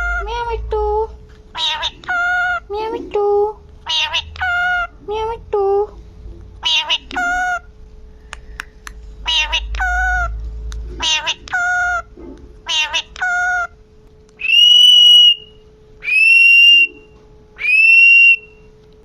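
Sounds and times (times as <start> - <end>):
parrot calling: 0.0 - 0.6, 1.5 - 5.2, 6.6 - 7.8, 9.2 - 10.4, 11.0 - 13.8, 14.4 - 18.6.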